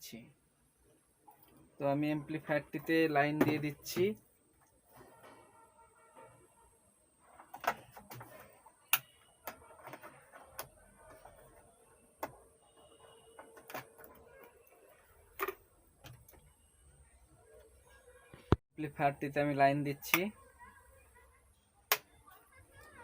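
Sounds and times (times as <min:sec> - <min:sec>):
cable handling clicks and taps: 0:07.4 - 0:11.6, 0:13.4 - 0:14.3, 0:19.9 - 0:20.3.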